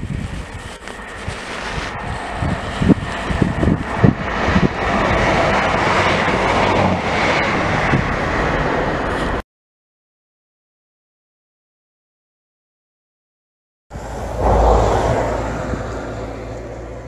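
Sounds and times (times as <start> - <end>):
train passing at speed: 0.0 - 9.4, 13.9 - 17.0.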